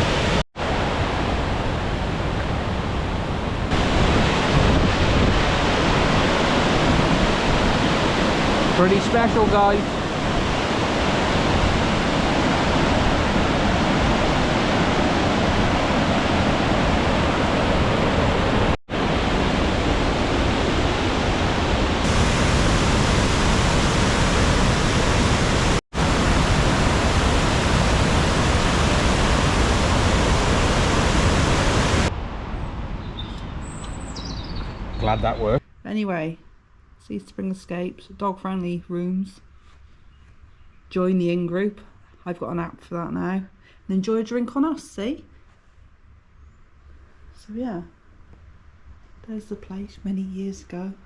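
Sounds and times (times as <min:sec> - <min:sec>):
waterfall roaring: 0:00.0 - 0:32.2.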